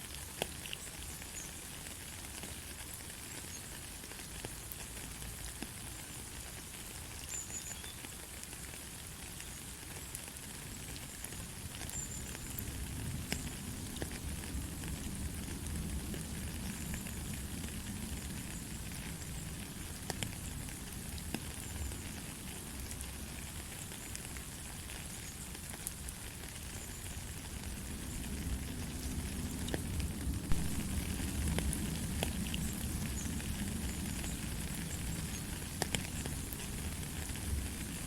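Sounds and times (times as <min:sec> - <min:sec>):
light rain hissing: 0:00.0 - 0:38.0
raindrop taps: 0:30.5 - 0:37.8.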